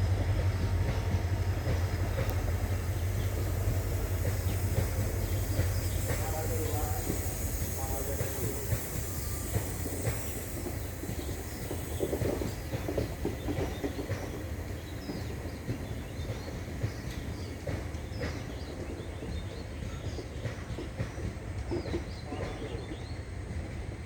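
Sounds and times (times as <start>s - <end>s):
train rumbling past: 0.0s - 24.0s.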